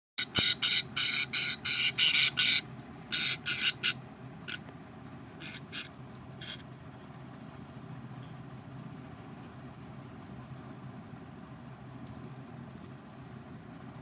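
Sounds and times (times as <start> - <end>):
budgerigars squawking: 0.2 - 4.6, 5.4 - 6.6
steady low hum: 0.2 - 14.0.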